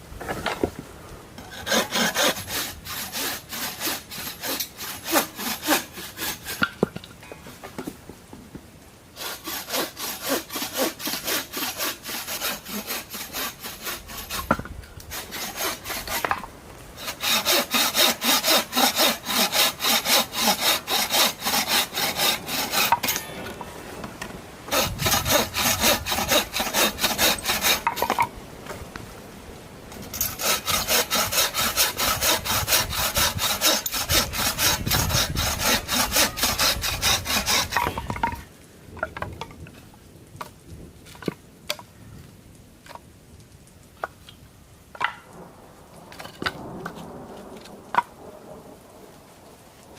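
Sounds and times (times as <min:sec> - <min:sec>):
hand saw cutting wood: 0:01.4 - 0:06.9, 0:09.2 - 0:23.3, 0:24.7 - 0:28.3, 0:30.0 - 0:38.4.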